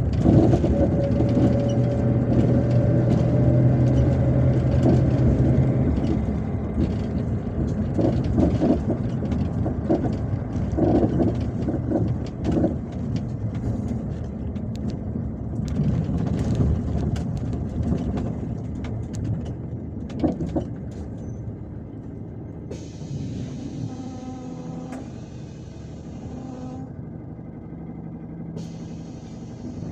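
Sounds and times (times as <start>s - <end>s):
body rattles and knocks: 0.0s - 22.4s
bus engine and road rumble: 0.0s - 29.9s.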